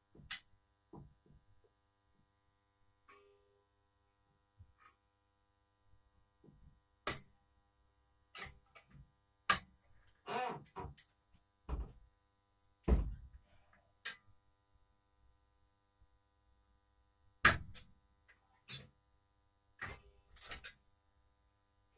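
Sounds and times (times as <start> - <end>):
short creak: 10.2 - 10.8
low thud: 12.9 - 13.3.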